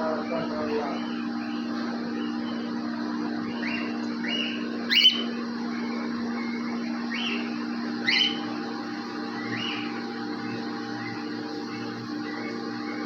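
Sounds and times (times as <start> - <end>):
steady low hum: 0.0 - 13.0
cockatiels chirping: 3.6 - 5.4, 7.1 - 8.5, 9.4 - 9.9.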